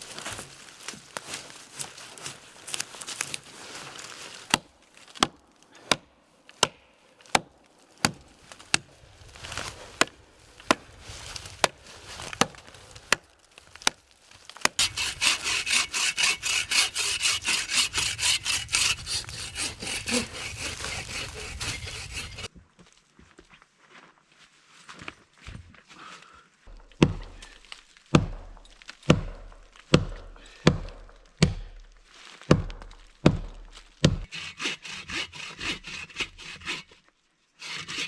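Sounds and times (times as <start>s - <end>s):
hand saw cutting wood: 14.8s - 22.5s, 34.2s - 38.0s.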